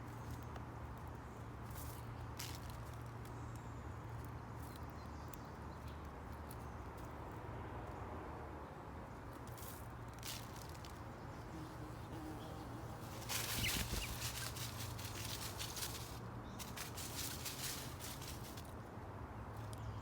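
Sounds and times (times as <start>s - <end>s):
birds rustling and clicking: 12.2s - 18.8s
faint bird chirps: 12.3s - 14.7s.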